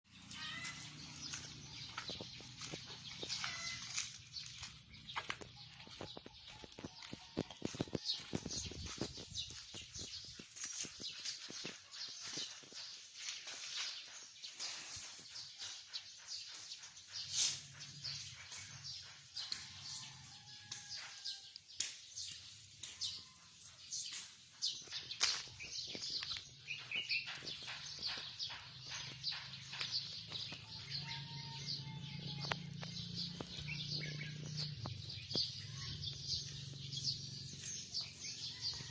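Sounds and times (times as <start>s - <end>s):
birds chirping: 0.1s - 21.3s, 22.2s - 38.9s.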